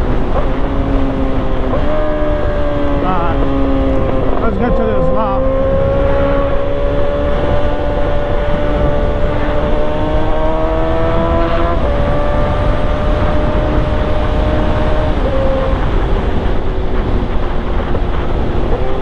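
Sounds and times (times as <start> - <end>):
motorcycle engine under throttle: 0.0 - 19.0
wind rush on microphone: 0.0 - 19.0.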